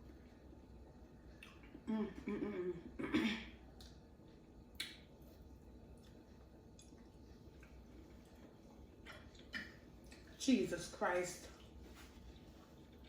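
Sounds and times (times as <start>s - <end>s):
soft squish: 11.4s - 13.0s.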